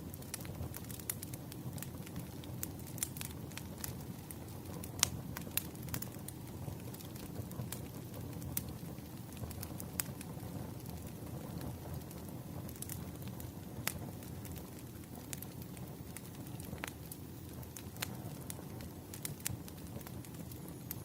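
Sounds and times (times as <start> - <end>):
low rumble of flame: 0.0 - 21.0
wood crackling and popping: 0.0 - 21.0.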